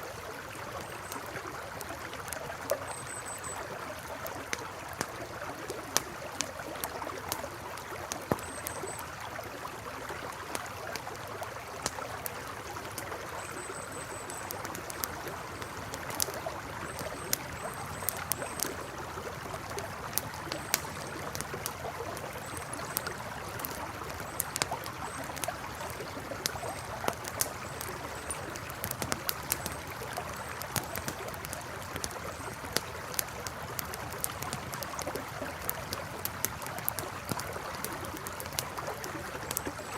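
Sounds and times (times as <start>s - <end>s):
campfire crackling and popping: 0.0s - 39.9s
river flowing: 0.0s - 39.9s.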